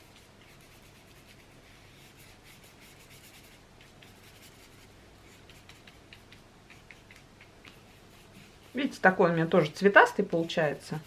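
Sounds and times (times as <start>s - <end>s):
paintbrush rubbing on paper: 0.0s - 11.0s
light ticks: 5.6s - 7.8s.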